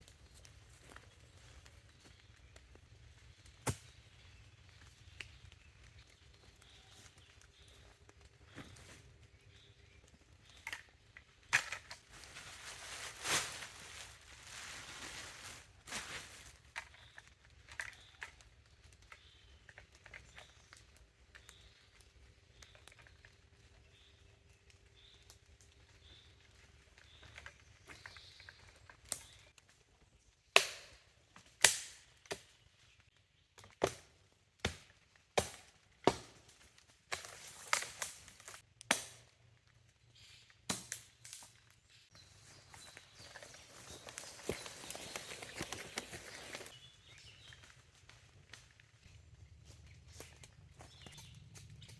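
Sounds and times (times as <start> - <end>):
forest litter rustling and crunching: 0.0 - 30.4, 31.0 - 38.7, 39.5 - 51.9
axe chopping wood: 34.6 - 36.4.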